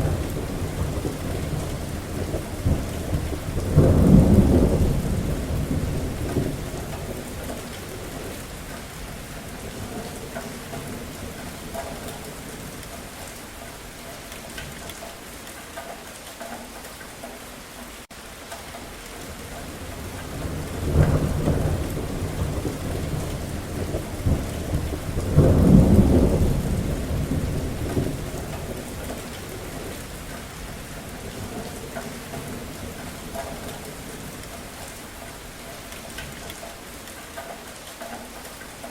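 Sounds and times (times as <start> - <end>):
thunder rumbling: 0.0 - 13.0, 19.3 - 35.1
steady rain: 0.0 - 38.9.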